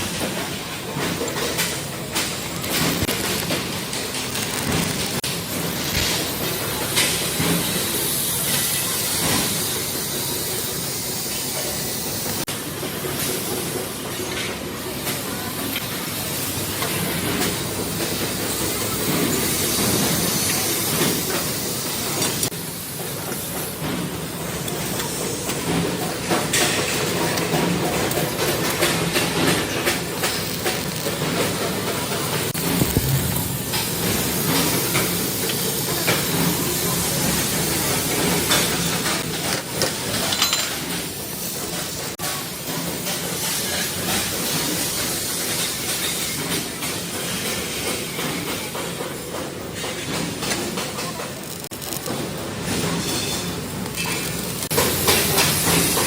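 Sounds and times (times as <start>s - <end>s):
workshop machinery with hiss: 0.0s - 56.0s
brief high ring: 32.8s - 34.2s.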